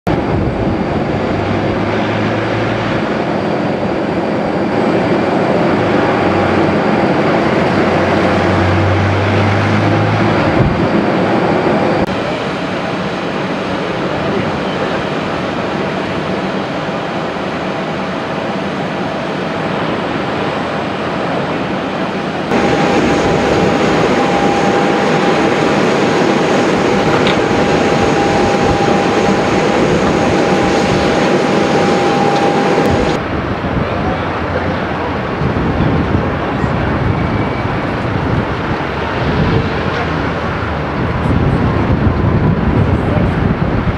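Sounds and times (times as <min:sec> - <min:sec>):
airliner jet engines landing: 0:00.1 - 0:43.9
faint steady whine: 0:22.4 - 0:33.2.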